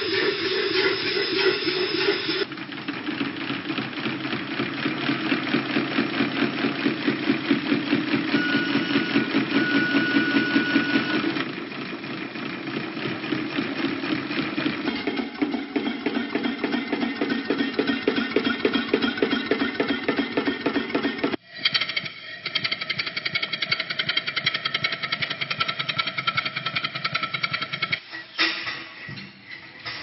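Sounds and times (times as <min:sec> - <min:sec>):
boat engine running: 0:02.0 - 0:21.4.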